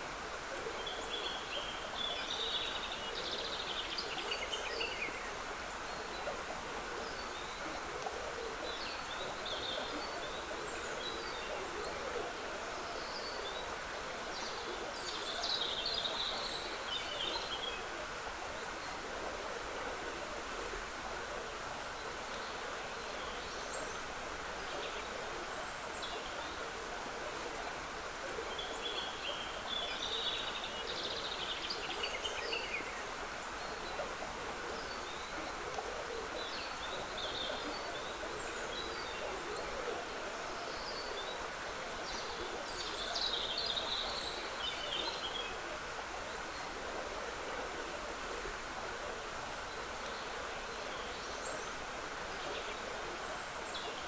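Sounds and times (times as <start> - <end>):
stream trickling: 0.0 - 54.0.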